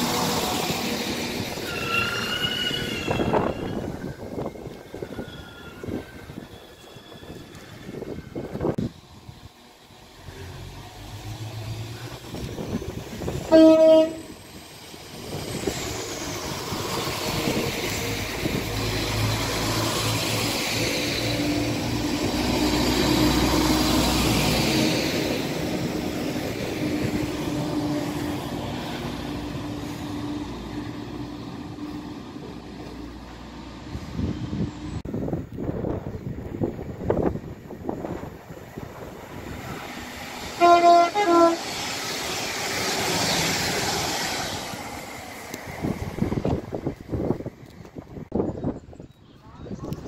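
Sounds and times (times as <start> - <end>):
train engine and wheel noise: 0.0 - 50.0
train horn blast: 13.5 - 14.3, 40.6 - 41.7.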